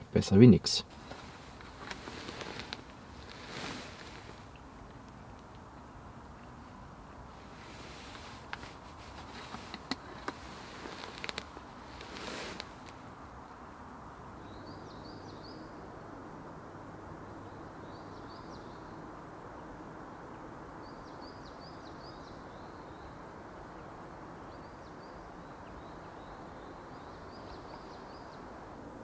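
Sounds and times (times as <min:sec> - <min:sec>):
faint forest hiss: 0:00.0 - 0:29.0
small birds chirping: 0:14.2 - 0:15.9, 0:17.3 - 0:19.8, 0:20.4 - 0:28.7.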